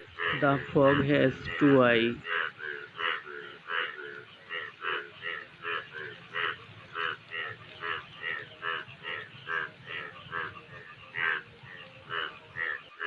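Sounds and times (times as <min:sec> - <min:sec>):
frogs croaking in chorus: 0:00.0 - 0:13.0.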